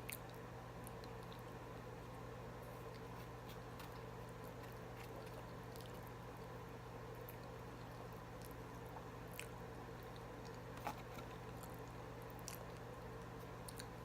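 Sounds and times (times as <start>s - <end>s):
low electrical hum: 0.0s - 14.0s
person chewing food: 2.7s - 6.2s, 7.2s - 14.0s.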